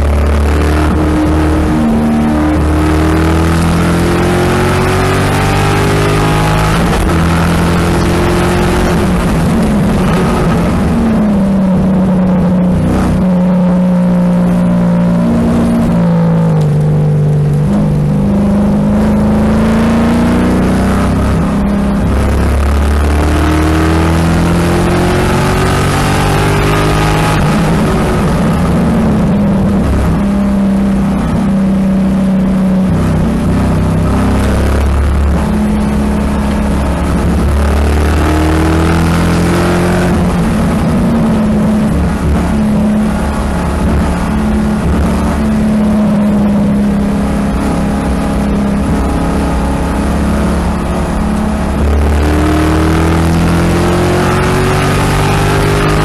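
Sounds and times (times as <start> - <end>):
car engine accelerating: 0.0 - 56.0
road noise: 0.0 - 56.0.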